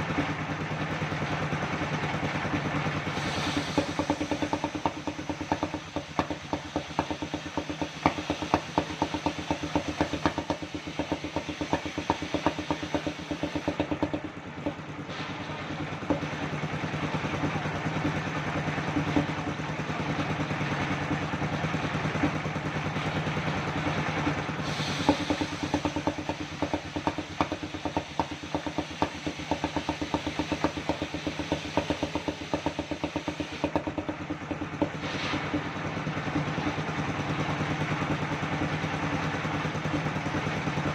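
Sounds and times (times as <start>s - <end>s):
sawmill engine running: 0.0s - 40.9s
rapid even knocking: 3.5s - 14.9s, 21.7s - 38.2s.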